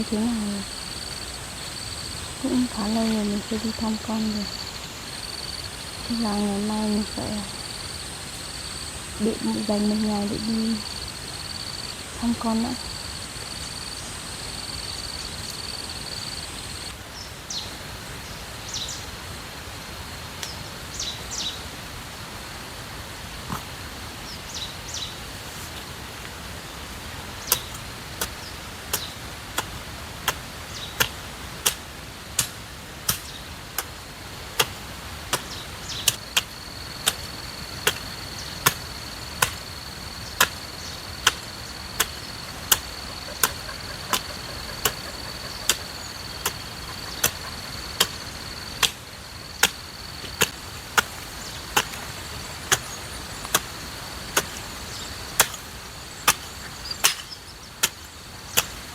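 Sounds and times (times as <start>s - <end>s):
insect buzzing: 35.8s - 58.9s
hoe chopping into soil: 48.8s - 49.0s, 49.6s - 58.8s.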